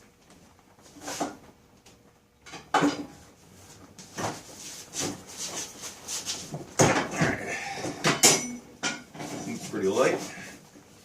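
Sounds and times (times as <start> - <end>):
metal clunks and scraping: 6.4 - 10.4.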